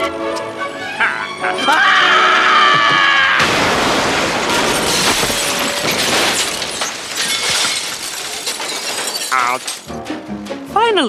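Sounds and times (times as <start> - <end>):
glass smashing and shattering: 3.4 - 10.1.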